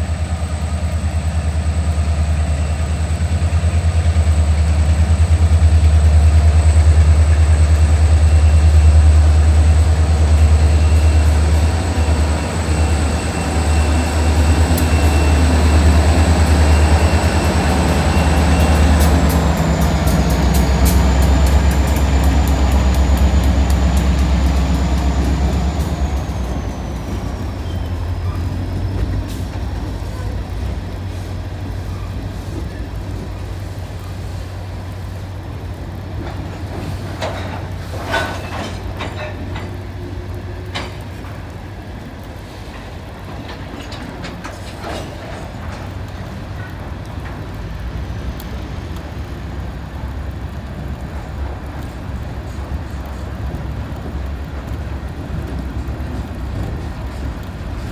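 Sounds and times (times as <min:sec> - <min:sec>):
diesel locomotive rumble: 0:00.0 - 0:57.9
freight train rolling over trestle: 0:00.0 - 0:57.9.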